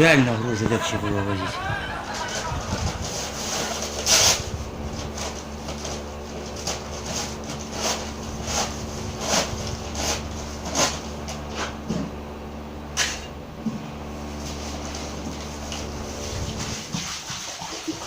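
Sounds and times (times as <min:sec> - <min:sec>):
steady low hum: 0:00.0 - 0:17.1.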